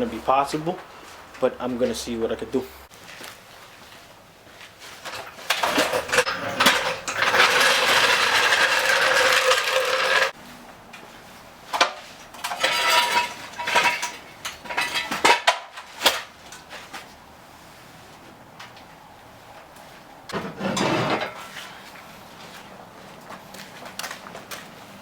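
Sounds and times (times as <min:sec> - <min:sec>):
metal tools clanking: 0:05.0 - 0:10.3, 0:12.3 - 0:16.7
rough scraping rattle: 0:05.1 - 0:10.4, 0:12.4 - 0:15.5.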